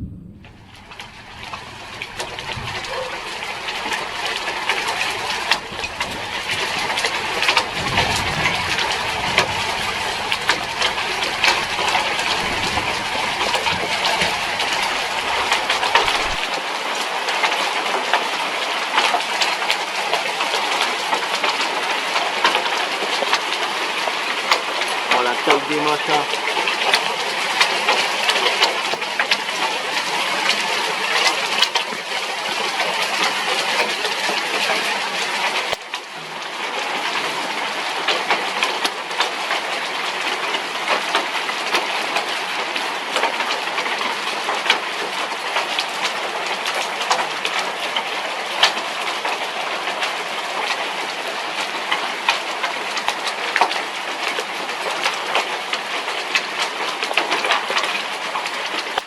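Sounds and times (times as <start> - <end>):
heavy rain pouring: 0.0 - 59.0
raindrops clicking close by: 0.0 - 59.0.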